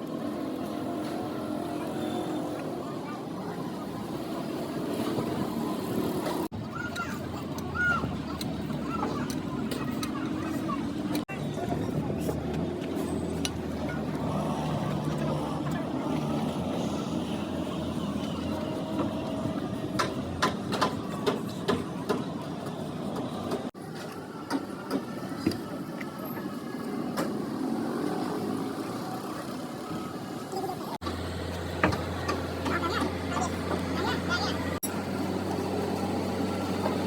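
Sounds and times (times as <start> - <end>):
vehicle engine running: 31.0 - 37.0.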